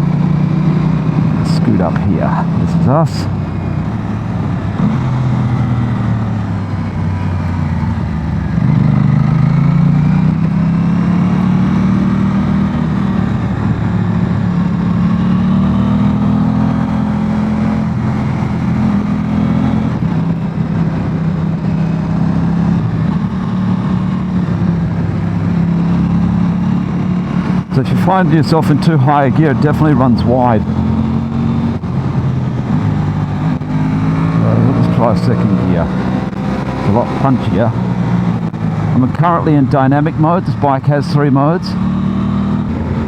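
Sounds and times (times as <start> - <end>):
motorcycle engine accelerating: 0.0 - 43.0.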